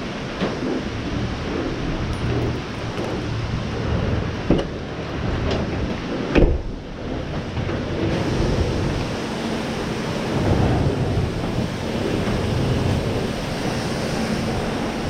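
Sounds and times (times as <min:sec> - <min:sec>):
pressure washer spraying water: 0:08.0 - 0:15.0.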